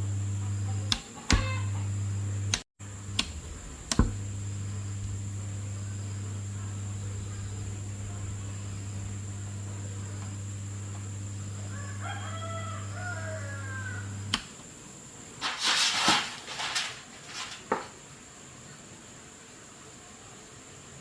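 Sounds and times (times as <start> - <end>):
electrical hum: 0.0 - 20.9
switch click: 2.5 - 4.2, 14.3 - 14.5
rooster crowing faintly: 11.3 - 14.3
rustling and knocking: 15.4 - 18.0.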